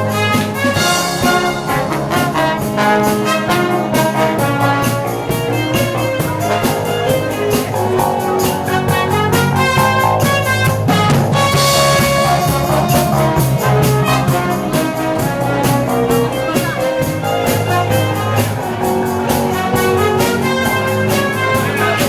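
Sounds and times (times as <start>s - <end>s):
drum beat: 0.0s - 22.0s
wind band playing pop tune: 0.0s - 22.0s.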